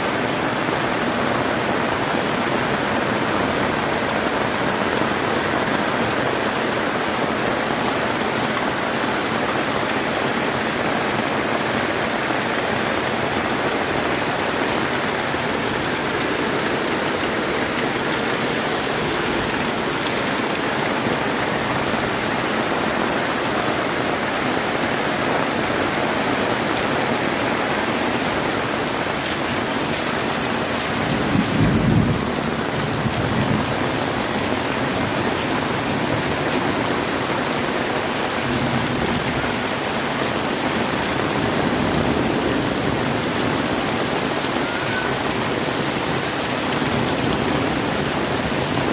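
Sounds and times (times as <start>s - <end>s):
heavy rain pouring: 0.0s - 48.9s
low rumble of thunder: 31.0s - 33.8s.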